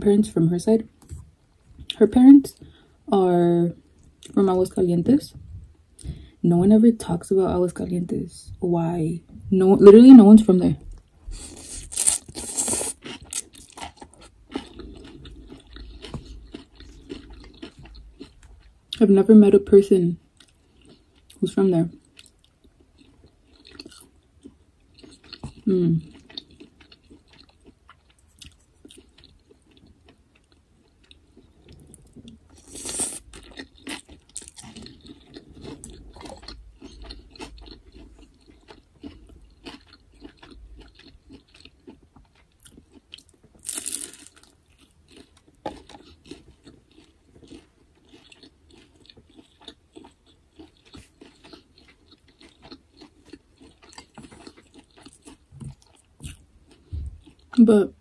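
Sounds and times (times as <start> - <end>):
person chewing food: 10.8 - 19.0, 20.3 - 57.6
crunching bites: 11.4 - 18.5, 42.6 - 56.4.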